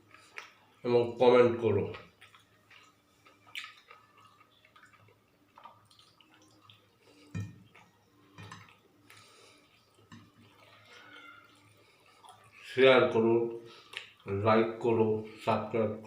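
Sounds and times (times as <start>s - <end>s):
chewing and handling food: 0.0s - 0.8s, 1.7s - 12.8s, 13.7s - 14.4s.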